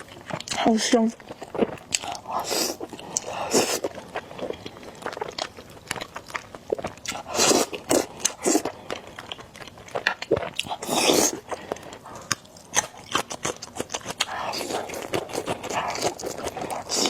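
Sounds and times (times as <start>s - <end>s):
close-miked chewing noodles: 0.0s - 17.0s.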